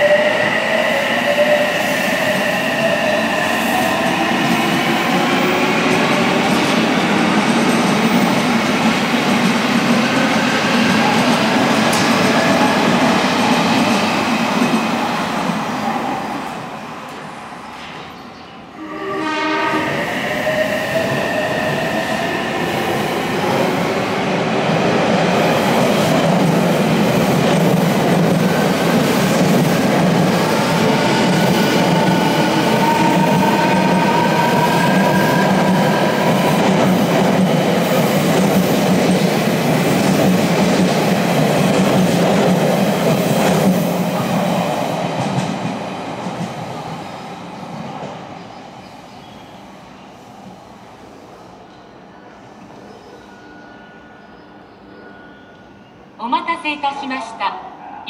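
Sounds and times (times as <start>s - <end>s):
train wheel and track noise: 0.0s - 58.0s
train horn falling in pitch: 18.8s - 20.0s.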